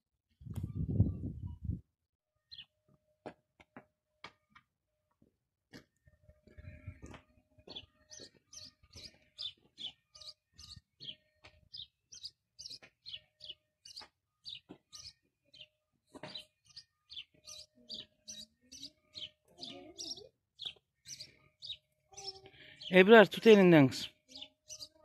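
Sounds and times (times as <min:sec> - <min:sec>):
songbird chirping: 0:06.5 - 0:25.0.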